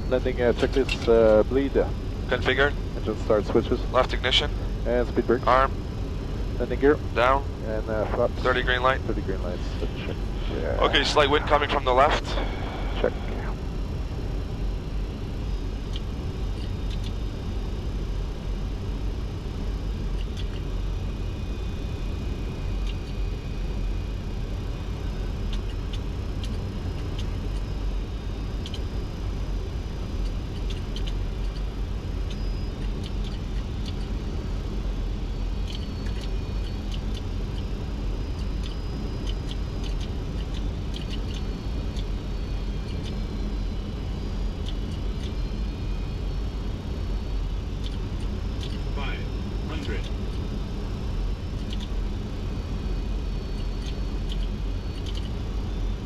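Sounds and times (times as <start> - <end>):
airflow and jet engine rumble: 0.0 - 56.0
ticks: 35.6 - 37.7, 38.4 - 42.1, 47.8 - 48.0, 48.6 - 48.8, 51.6 - 51.9, 53.6 - 55.4.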